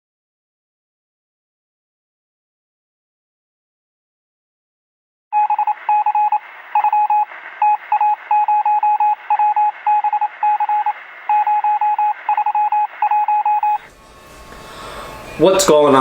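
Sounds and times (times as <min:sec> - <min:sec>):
morse code beeping: 0:05.4 - 0:13.9
radio static hiss: 0:05.7 - 0:08.3, 0:09.1 - 0:13.1.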